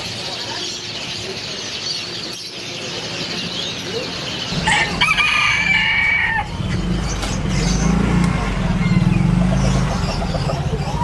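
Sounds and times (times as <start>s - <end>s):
small birds chirping: 0.0s - 11.0s
rooster crowing: 4.6s - 6.7s.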